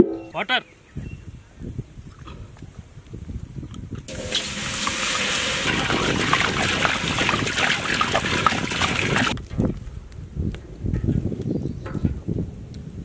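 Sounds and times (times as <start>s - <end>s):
water pouring into metal pot: 4.1s - 9.4s.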